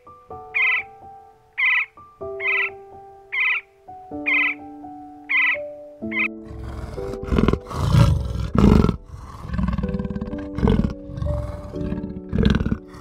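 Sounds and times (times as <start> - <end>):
gentle piano music: 0.0 - 13.0
animal deep rasping calls: 5.3 - 13.0.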